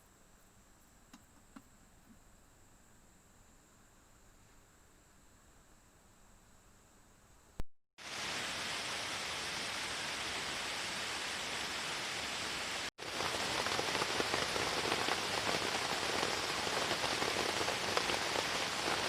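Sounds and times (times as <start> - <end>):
click: 1.1 - 1.7
steady rain: 8.0 - 19.0.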